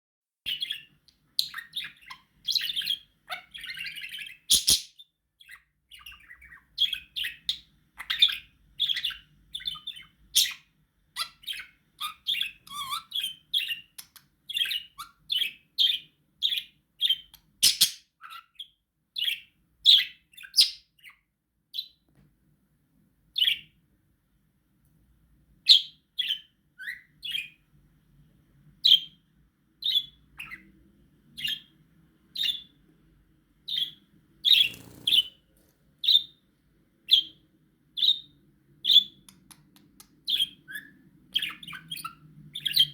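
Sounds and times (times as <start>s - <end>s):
budgie chirping and chattering: 33.7s - 35.3s.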